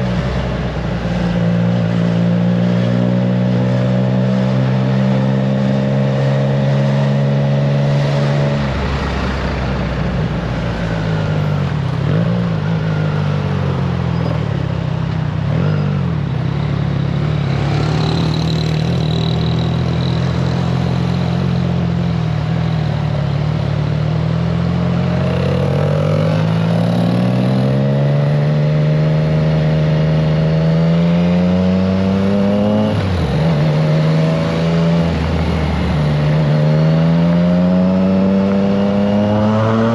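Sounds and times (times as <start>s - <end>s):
motorcycle engine revving: 15.4s - 39.9s.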